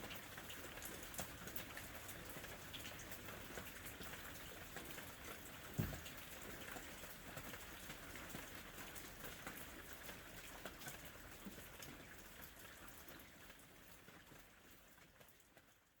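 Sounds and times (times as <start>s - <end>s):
steady rain: 0.0s - 16.0s
low thump: 5.8s - 6.2s.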